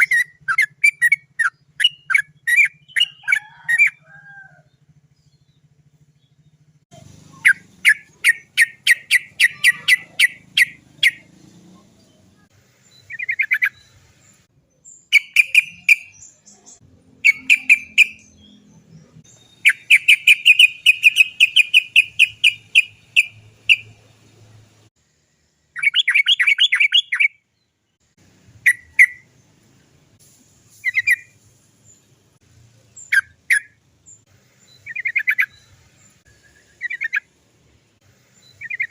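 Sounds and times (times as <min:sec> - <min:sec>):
bulbul calling in sharp trills: 0:00.0 - 0:04.7, 0:06.9 - 0:11.3, 0:15.0 - 0:24.0, 0:25.8 - 0:27.4, 0:28.6 - 0:29.3, 0:34.8 - 0:37.3, 0:38.4 - 0:38.9.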